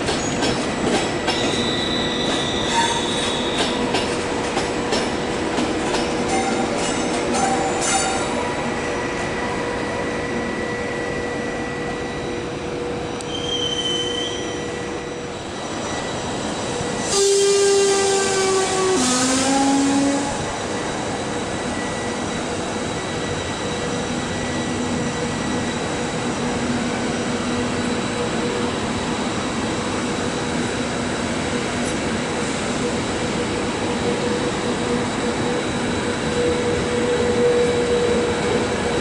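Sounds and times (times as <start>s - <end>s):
train wheels rumbling on rails: 0.0s - 39.0s
two-tone train horn: 17.0s - 20.6s.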